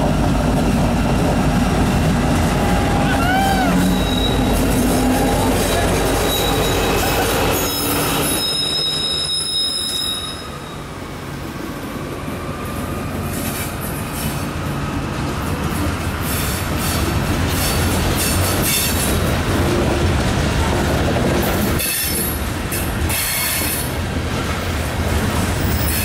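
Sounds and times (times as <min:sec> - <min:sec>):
train wheels rumbling and clicking: 0:00.0 - 0:09.8, 0:11.6 - 0:26.0
diesel locomotive passing: 0:00.0 - 0:26.0
high-pitched squeal: 0:02.5 - 0:10.9.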